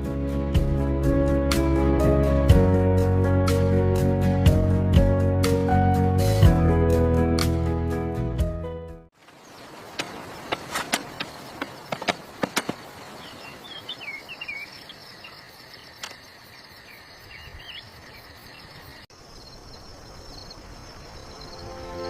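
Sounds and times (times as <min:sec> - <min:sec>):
birds chirping: 0:09.2 - 0:22.0
insects buzzing: 0:09.2 - 0:22.0.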